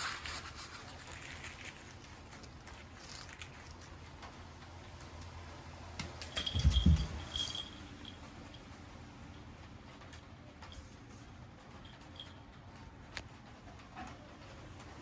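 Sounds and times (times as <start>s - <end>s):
light taps and rustles: 6.0s - 7.8s
heavy thump: 6.5s - 7.4s.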